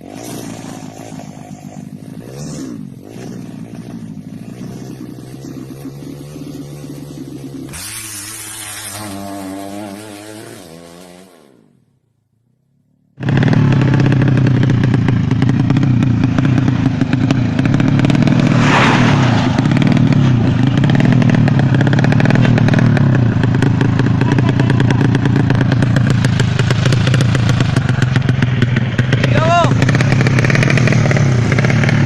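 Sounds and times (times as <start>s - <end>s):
motorcycle engine running loudly: 0.0s - 9.0s, 13.2s - 32.0s
hissing burst: 17.7s - 22.1s.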